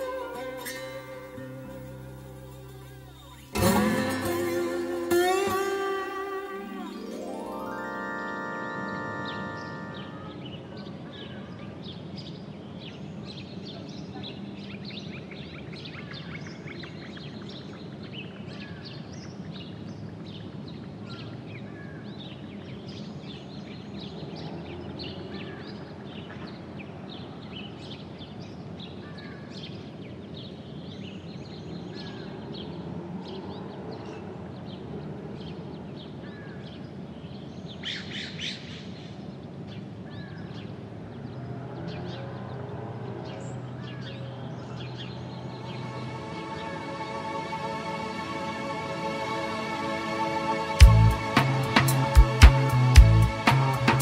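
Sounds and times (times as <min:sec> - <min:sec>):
steady background hiss: 0:00.0 - 0:13.6, 0:44.2 - 0:54.0.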